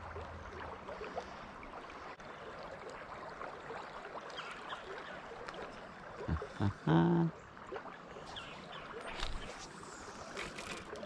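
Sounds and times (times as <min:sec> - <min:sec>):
river rushing and babbling: 0:00.0 - 0:11.0.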